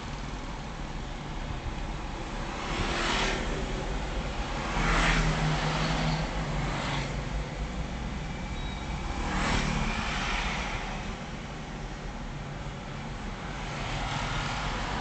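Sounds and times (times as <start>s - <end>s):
low engine hum with tyre noise: 0.0s - 15.0s
vehicles swishing past: 2.5s - 7.3s, 8.4s - 11.8s.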